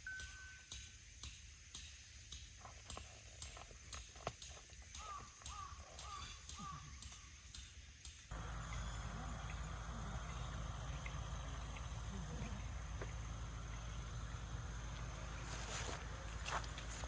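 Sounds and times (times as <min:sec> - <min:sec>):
insects chirping: 0:00.0 - 0:17.0
low constant rumble: 0:08.3 - 0:17.0.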